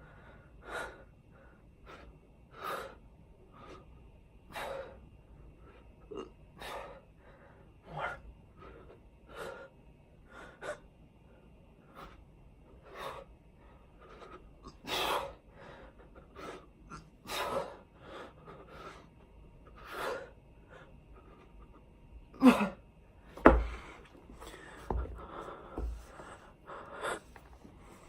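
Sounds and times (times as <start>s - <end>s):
soft bumps: 23.4s - 26.4s.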